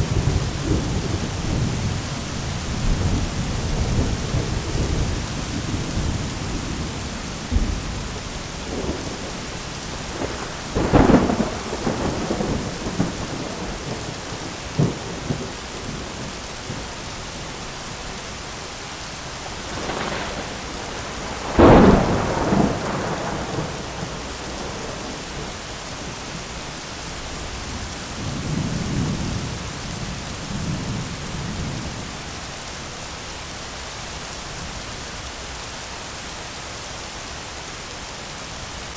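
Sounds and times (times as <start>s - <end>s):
thunder claps with rumbling: 0.0s - 17.0s, 19.6s - 26.6s
steady rain: 0.0s - 38.9s.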